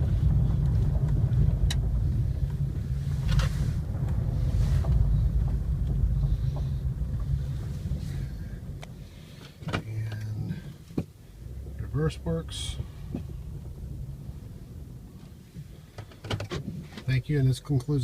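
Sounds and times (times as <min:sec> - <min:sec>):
wind on microphone: 0:00.0 - 0:09.7
car engine and road rumble: 0:00.0 - 0:18.0.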